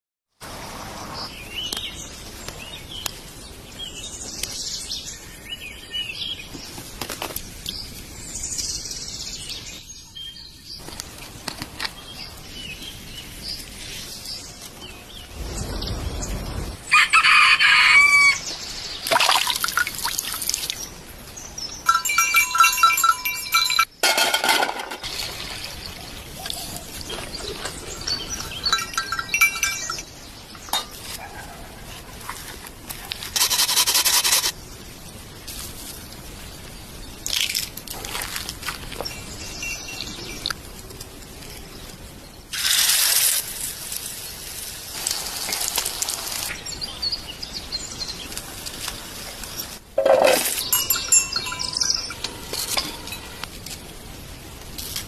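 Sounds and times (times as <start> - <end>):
rooster crowing: 16.9 - 18.5.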